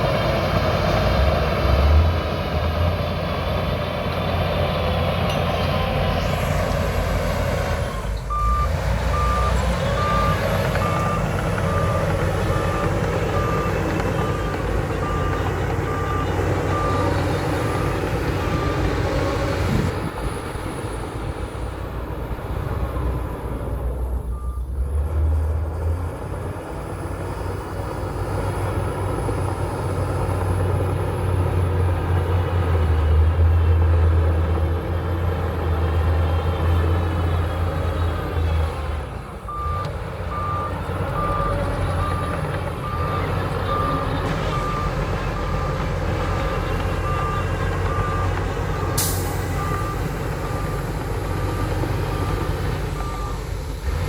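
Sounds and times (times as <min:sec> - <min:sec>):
bulldozer diesel engine working: 0:00.0 - 0:54.0
reversing alarm beeping: 0:08.3 - 0:19.7, 0:24.3 - 0:24.7, 0:39.5 - 0:53.5.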